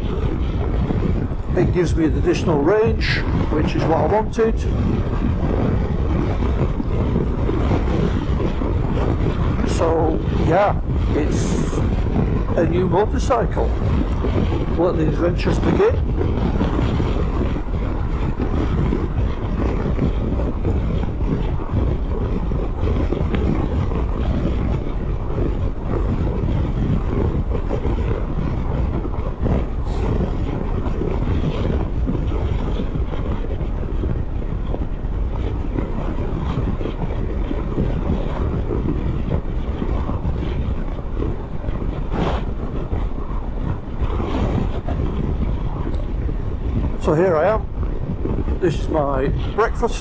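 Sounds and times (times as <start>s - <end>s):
wind on microphone: 0.0s - 50.0s.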